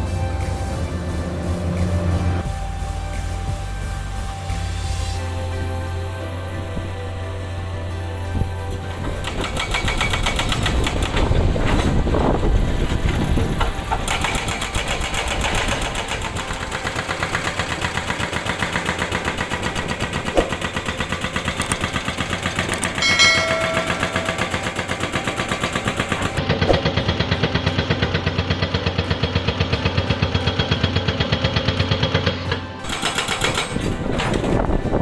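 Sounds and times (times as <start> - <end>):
excavator engine running: 0.0 - 35.0
hydraulic rock breaker hammering rock: 8.0 - 35.0
short high-pitched ringing: 22.1 - 26.4.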